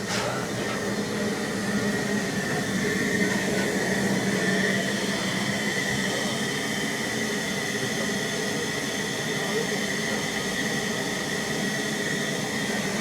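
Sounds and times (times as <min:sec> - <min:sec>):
train wheels rumbling on rail: 0:00.0 - 0:07.5.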